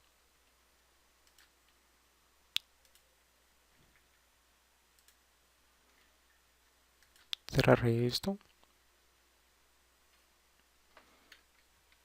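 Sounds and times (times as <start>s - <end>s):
computer mouse click: 1.2s - 1.5s, 2.5s - 3.1s, 5.0s - 5.2s, 7.0s - 7.5s.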